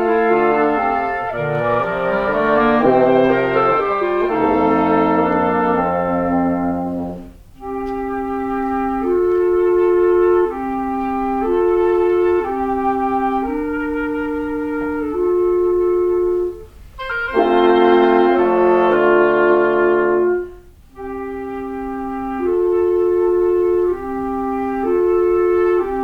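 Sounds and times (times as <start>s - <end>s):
wind quintet playing held chords: 0.0s - 26.0s.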